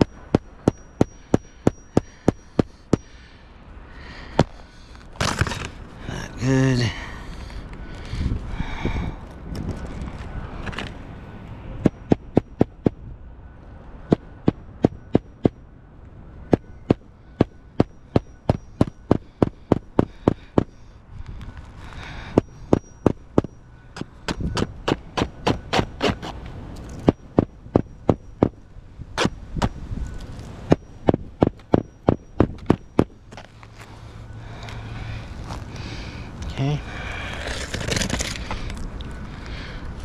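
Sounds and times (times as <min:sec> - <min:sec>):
hammer driving nails: 0:22.4 - 0:26.4.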